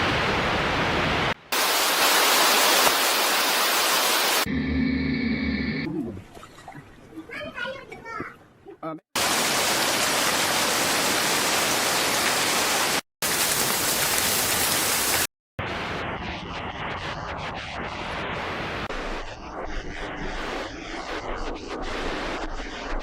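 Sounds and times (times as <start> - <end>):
rushing water: 0.0 - 4.5, 9.2 - 15.3.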